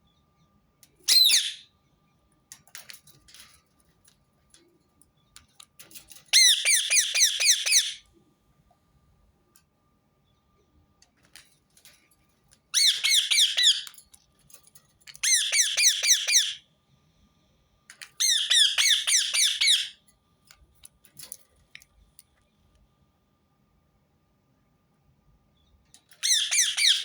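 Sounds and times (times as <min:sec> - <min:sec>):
parakeet shrill chirps: 0:01.1 - 0:01.7, 0:06.4 - 0:08.0, 0:12.8 - 0:13.9, 0:15.2 - 0:16.6, 0:18.2 - 0:20.0, 0:26.2 - 0:27.0.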